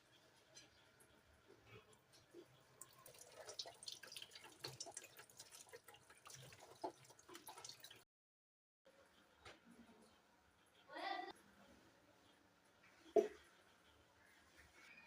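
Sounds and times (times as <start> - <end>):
water dripping and splashing: 1.7 - 8.0.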